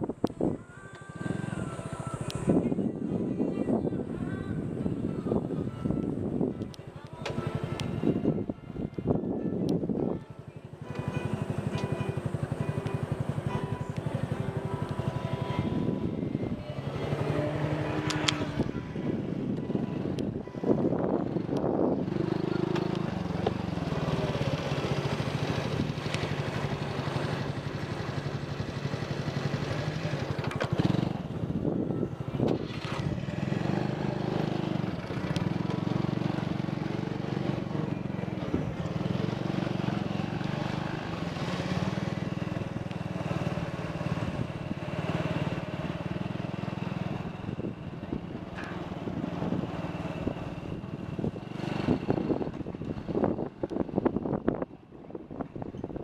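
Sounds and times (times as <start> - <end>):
motorcycle engine revving: 10.8 - 54.6.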